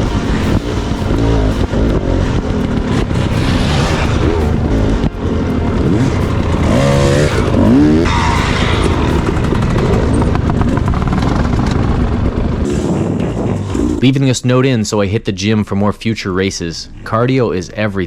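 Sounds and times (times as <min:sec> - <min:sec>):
dirt bike engine revving: 0:00.0 - 0:14.2.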